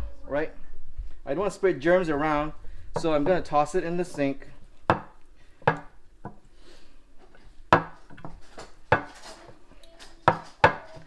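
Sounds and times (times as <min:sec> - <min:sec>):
dishes and utensils knocking: 0:02.8 - 0:06.6, 0:07.2 - 0:11.0.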